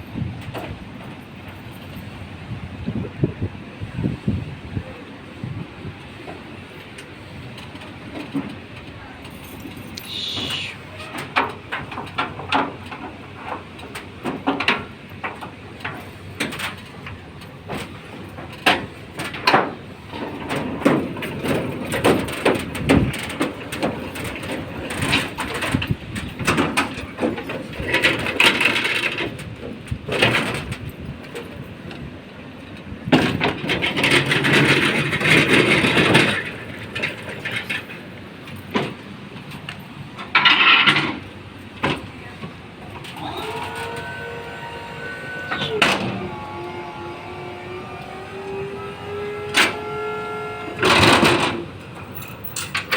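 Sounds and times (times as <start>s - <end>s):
heavy machines knocking and scraping: 11.1s - 39.6s, 40.2s - 52.9s.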